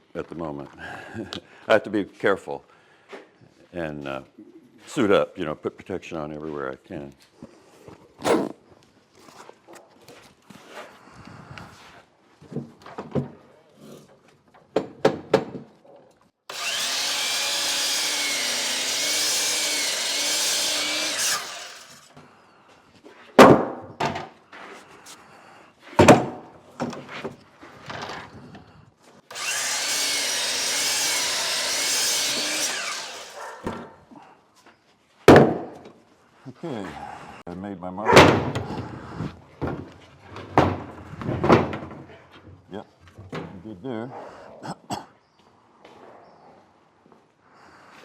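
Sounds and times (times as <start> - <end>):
power saw cutting wood: 16.5 - 22.2, 29.3 - 33.8.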